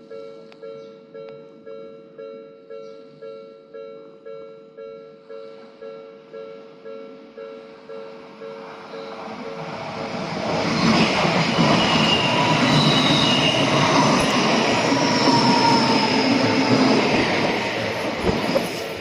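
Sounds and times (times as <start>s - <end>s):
train wheels rushing on rail: 8.6s - 19.0s.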